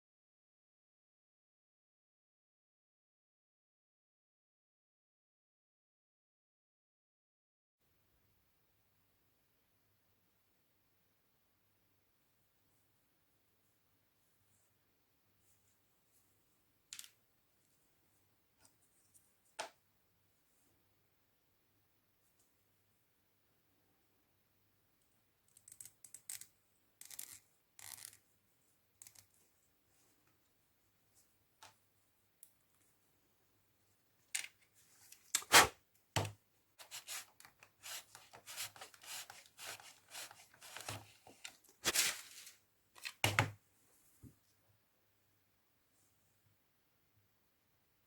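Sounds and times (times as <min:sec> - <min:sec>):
plastic parts being sanded by hand: 0:36.8 - 0:42.0.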